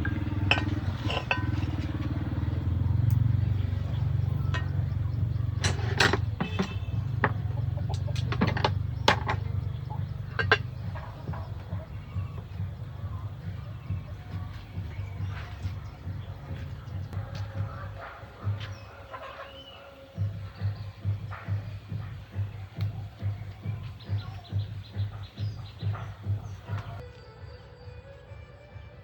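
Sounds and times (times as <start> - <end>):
scattered clicks and knocks: 0.0 - 11.9
vehicle engine running: 0.0 - 18.8.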